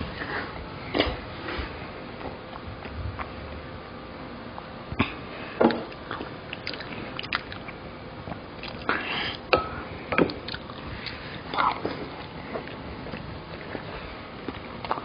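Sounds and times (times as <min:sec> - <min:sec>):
biting and chewing: 0:05.9 - 0:09.0.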